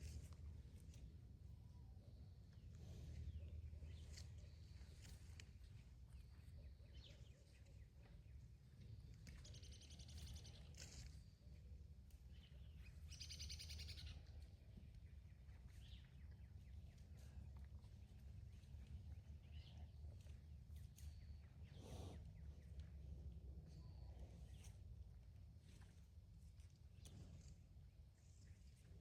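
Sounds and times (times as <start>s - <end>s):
low steady rumble: 0.0s - 13.2s, 14.0s - 29.0s
faint bird chirps: 6.1s - 11.6s, 12.3s - 17.7s
bird trills: 13.1s - 14.2s.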